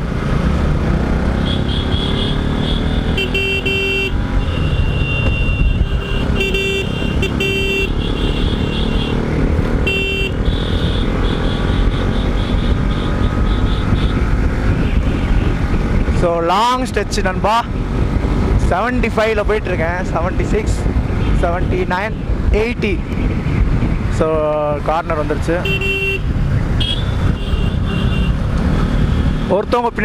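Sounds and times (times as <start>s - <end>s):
engine and road noise: 0.0s - 30.0s
motorcycle horns honking: 1.4s - 15.6s, 25.6s - 28.4s.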